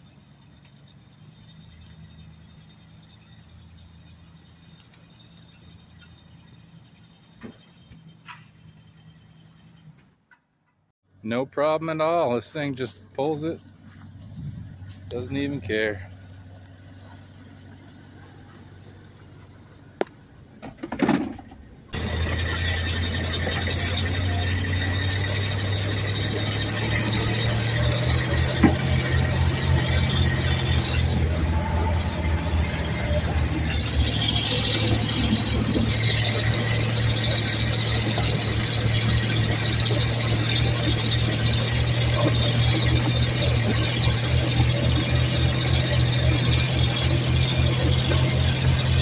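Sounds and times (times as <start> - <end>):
truck engine running: 0.0 - 49.0
thin high squeal: 22.0 - 49.0.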